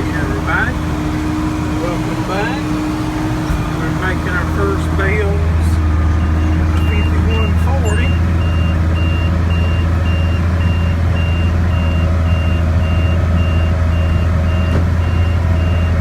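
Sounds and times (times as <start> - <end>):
tractor diesel engine running: 0.0 - 16.0
rapid high warning beeps: 6.2 - 16.0.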